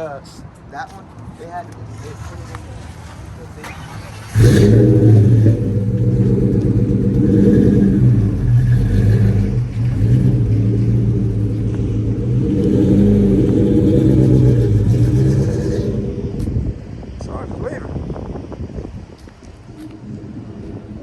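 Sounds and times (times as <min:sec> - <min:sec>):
car engine starting and idling: 0:02.4 - 0:17.5.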